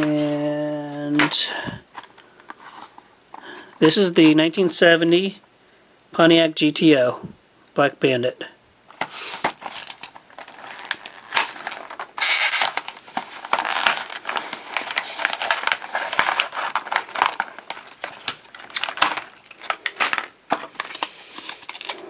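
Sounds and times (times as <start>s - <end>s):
plastic packaging crinkling: 8.9s - 22.0s.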